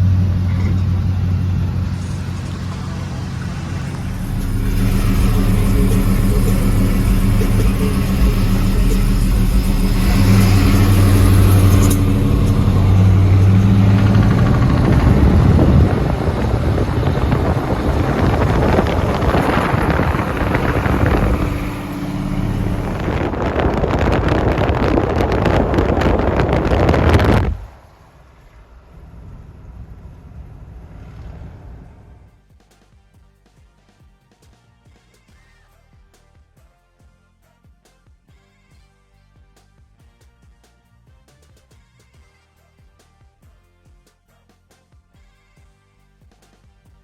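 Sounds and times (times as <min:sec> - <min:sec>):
car engine revving: 0:00.0 - 0:32.4.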